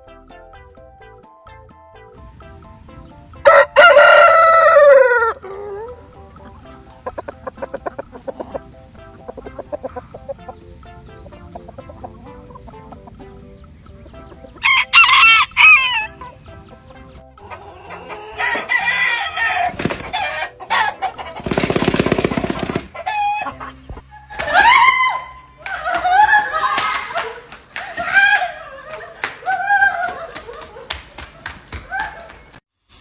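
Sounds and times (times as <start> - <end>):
chickens clucking: 2.5 - 26.3
rooster crowing: 3.4 - 6.0, 14.6 - 16.2, 17.6 - 21.2.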